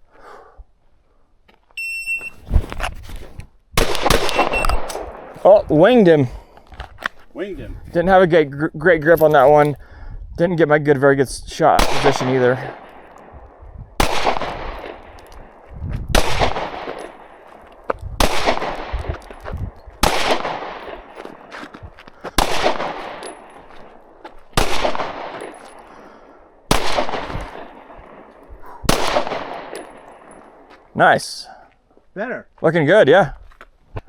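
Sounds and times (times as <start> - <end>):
pistol shots with echo: 3.8 - 6.0, 11.8 - 17.6, 18.2 - 19.4, 20.0 - 21.5, 22.4 - 26.0, 26.7 - 30.7.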